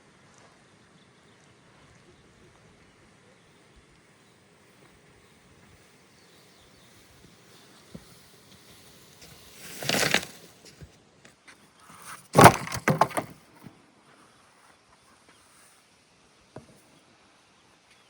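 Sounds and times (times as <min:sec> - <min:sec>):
wood cracking: 0:09.6 - 0:10.8, 0:11.9 - 0:13.5
wood splintering: 0:11.9 - 0:13.4.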